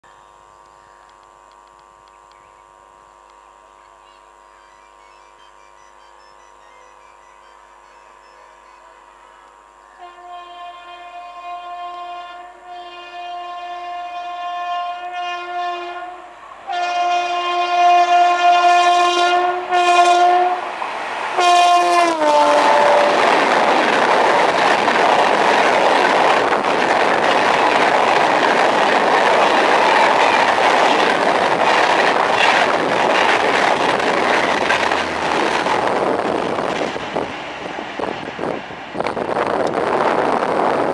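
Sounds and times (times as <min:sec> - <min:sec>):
train horn chord: 0:08.9 - 0:20.8, 0:21.4 - 0:23.7
train wheels on rails: 0:13.6 - 0:40.9
wind rushing: 0:20.6 - 0:40.9.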